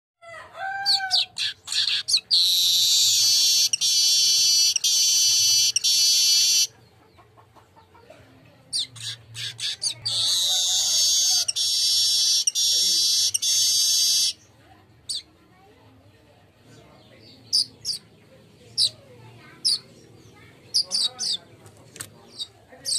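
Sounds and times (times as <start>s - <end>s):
weaver bird singing: 0.9s - 7.0s, 8.7s - 15.3s, 16.7s - 19.0s, 19.6s - 21.5s, 22.2s - 22.9s.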